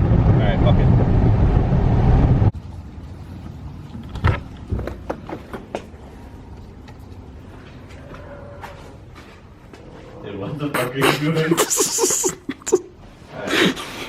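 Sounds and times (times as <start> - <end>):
car road and engine noise: 0.0 - 7.4.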